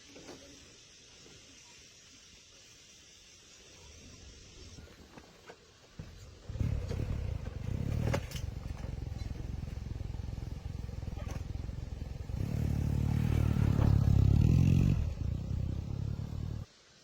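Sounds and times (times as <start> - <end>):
engine starting and running: 6.5 - 16.7.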